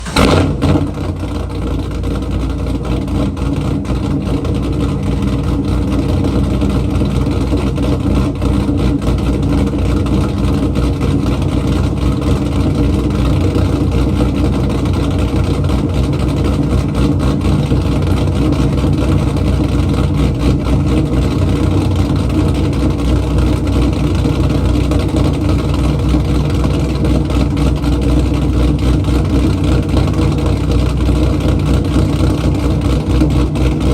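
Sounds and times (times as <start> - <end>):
car engine fast idle: 0.0 - 33.9.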